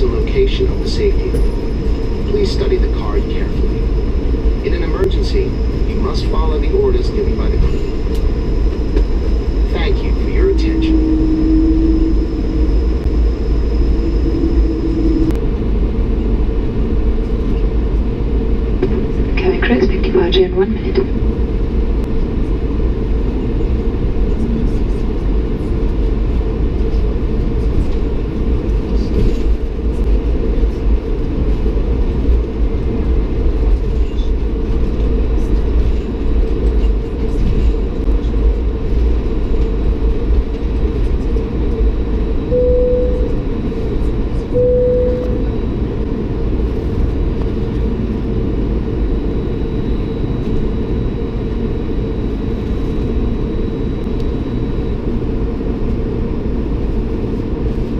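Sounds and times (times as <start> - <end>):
airliner cabin rumble: 0.0 - 57.9
short steady tones: 9.4 - 15.4, 42.5 - 43.5, 44.5 - 45.8.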